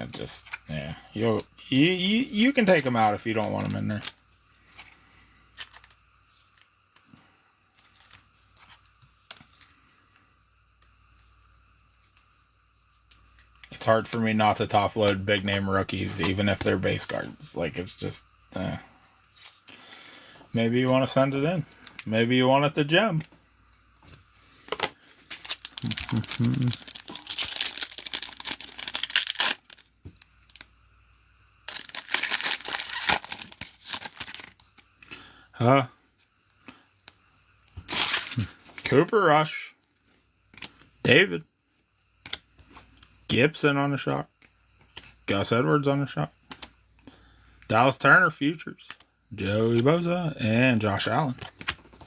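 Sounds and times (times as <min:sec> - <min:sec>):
card wrappers crinkling: 0:01.2 - 0:06.7, 0:07.7 - 0:09.8, 0:24.7 - 0:30.7, 0:31.6 - 0:35.3, 0:37.8 - 0:39.2.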